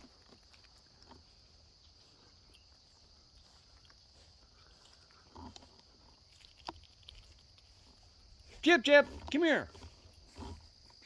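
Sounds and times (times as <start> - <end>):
faint ticks: 0.3 - 8.0.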